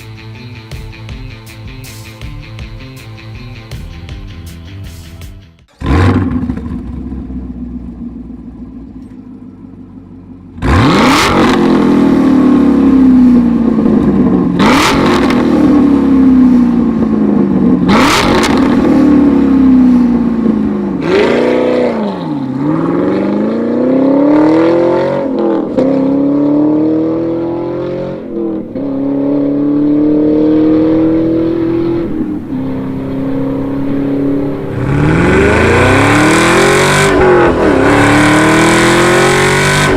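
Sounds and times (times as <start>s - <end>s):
car engine revving: 5.7s - 8.9s, 10.0s - 39.9s.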